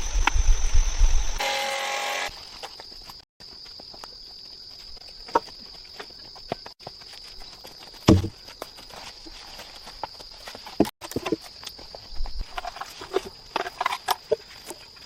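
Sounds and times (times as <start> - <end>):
dull thump: 8.1 - 8.4.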